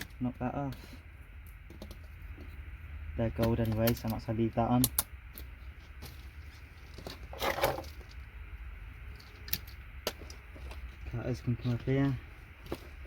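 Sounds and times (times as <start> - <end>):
small clicks and rattles of metal pieces: 1.4 - 2.5, 3.3 - 6.2, 6.8 - 8.3, 9.1 - 11.0.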